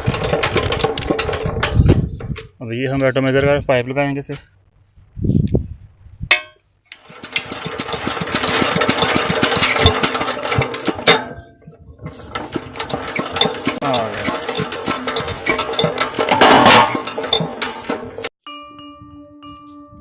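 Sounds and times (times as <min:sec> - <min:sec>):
diesel pump engine knocking: 0:07.0 - 0:18.2.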